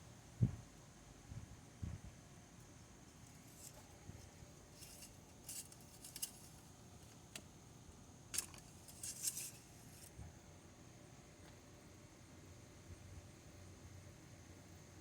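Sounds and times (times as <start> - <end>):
small hard objects clicking: 4.8 - 6.6, 8.3 - 10.1.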